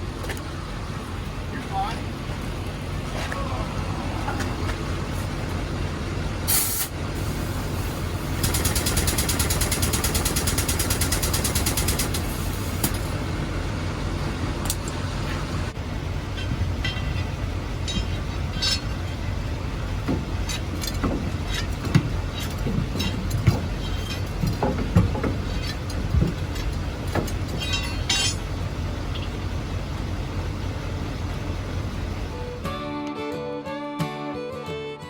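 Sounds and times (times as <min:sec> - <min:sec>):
truck engine idling: 0:00.0 - 0:32.8
air hiss: 0:06.5 - 0:08.4
pneumatic impact wrench rattling: 0:06.5 - 0:13.2, 0:20.4 - 0:28.4
tools and metal parts clicking: 0:16.3 - 0:19.3, 0:20.4 - 0:28.5.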